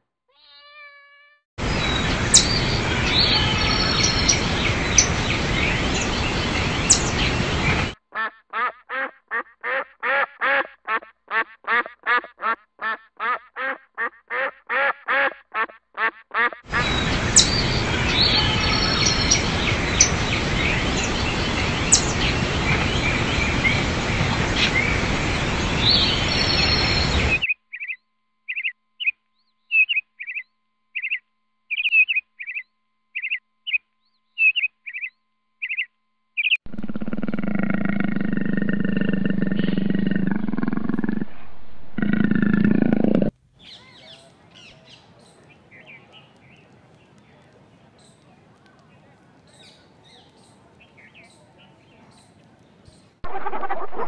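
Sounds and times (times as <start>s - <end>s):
birds chirping: 1.6s - 8.0s, 16.7s - 29.1s, 33.2s - 54.0s
steady outdoor hiss: 1.6s - 8.0s, 16.7s - 27.5s, 36.7s - 54.0s
birds calling: 1.6s - 10.2s, 15.6s - 29.1s, 34.4s - 54.0s.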